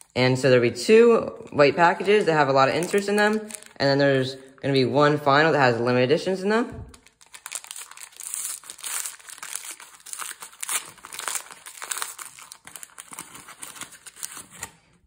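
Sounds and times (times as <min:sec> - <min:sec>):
foil packet torn and crinkled: 0:01.4 - 0:03.8, 0:06.9 - 0:14.8.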